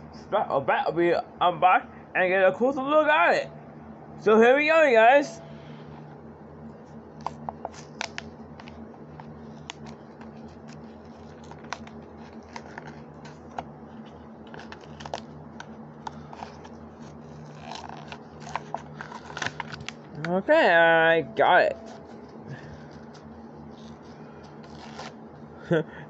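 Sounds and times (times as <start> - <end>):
plastic blister pack crackling: 7.2 - 20.3, 21.6 - 25.2.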